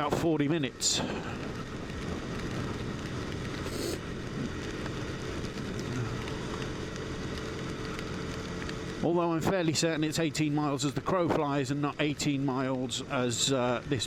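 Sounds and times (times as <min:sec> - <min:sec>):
wind and wet-road noise: 0:00.0 - 0:14.0
motorcycle engine running: 0:00.8 - 0:09.3.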